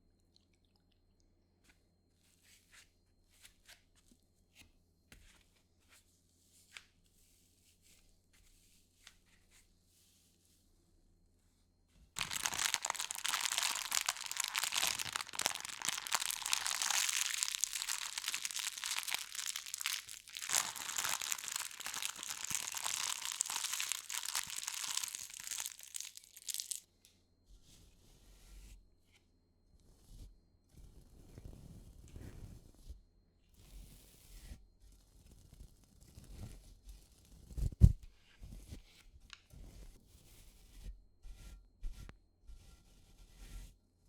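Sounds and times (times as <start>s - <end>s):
packing material crinkling: 12.2s - 26.8s.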